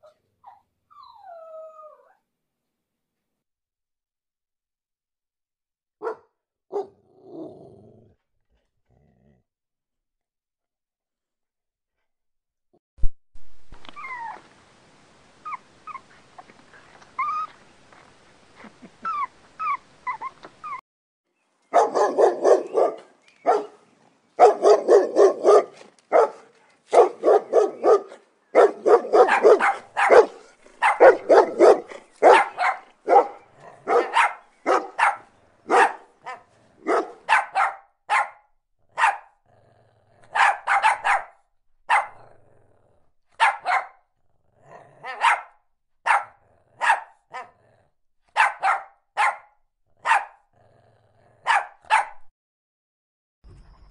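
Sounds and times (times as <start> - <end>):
dog barking: 6.0 - 7.0, 21.7 - 23.8, 24.4 - 39.4, 40.3 - 42.3, 43.4 - 44.0, 45.0 - 47.6, 48.3 - 50.4, 51.4 - 52.3.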